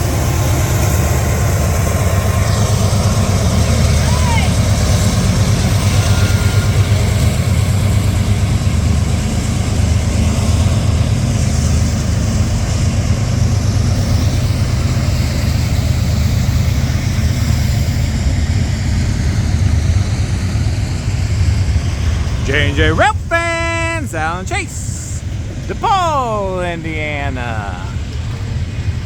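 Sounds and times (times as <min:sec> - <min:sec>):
engine running with deep rumble: 0:00.0 - 0:22.8.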